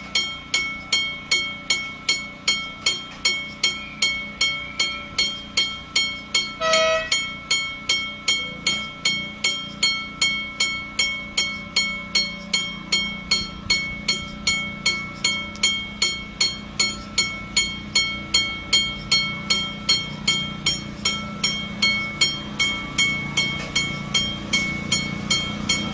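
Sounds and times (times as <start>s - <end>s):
bell struck rapidly: 0.0s - 25.9s
steady low hum: 0.0s - 25.9s
short tone: 6.6s - 7.2s.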